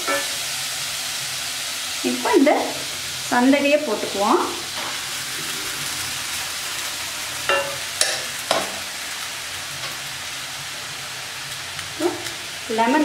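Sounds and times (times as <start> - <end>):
utensils clacking against pan: 0.0 - 0.4, 7.4 - 8.8
food sizzling in a pan: 0.0 - 13.0.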